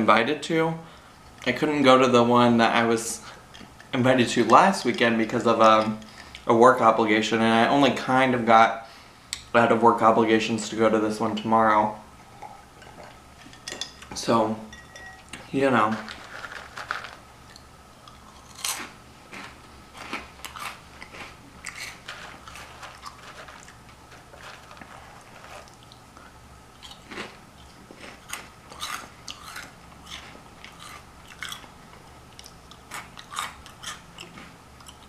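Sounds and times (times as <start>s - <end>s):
crunching crisp snack: 15.9s - 35.0s.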